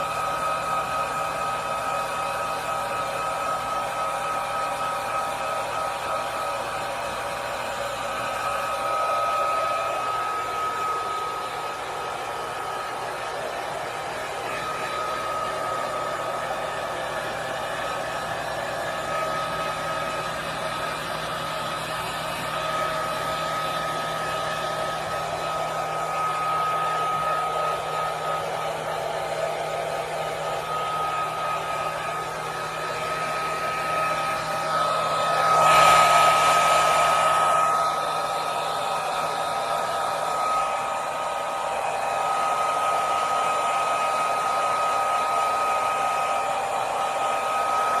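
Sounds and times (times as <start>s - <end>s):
hair dryer running: 0.0s - 48.0s.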